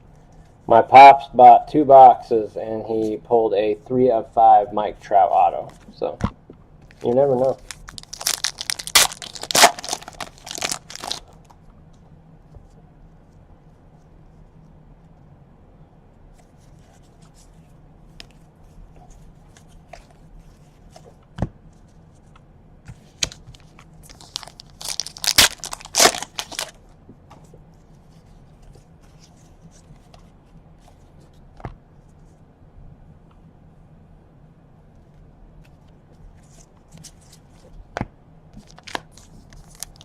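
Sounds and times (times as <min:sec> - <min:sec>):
card pack wrapper tearing: 0:07.0 - 0:11.4, 0:23.2 - 0:26.8, 0:38.6 - 0:40.0.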